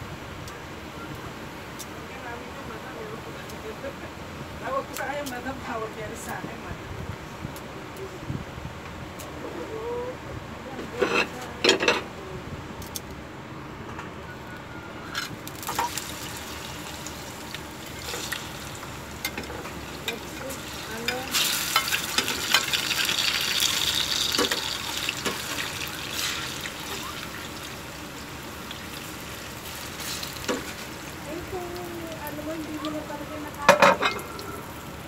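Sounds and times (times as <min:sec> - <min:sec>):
low frying hiss: 0:00.0 - 0:13.0, 0:14.5 - 0:35.0
food sizzling in hot oil: 0:15.2 - 0:35.0.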